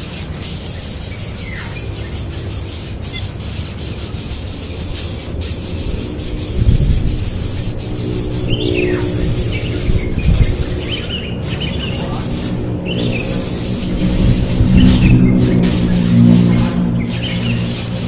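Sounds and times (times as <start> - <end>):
bird chirping: 0.0 - 18.0
low rumble: 3.7 - 18.0.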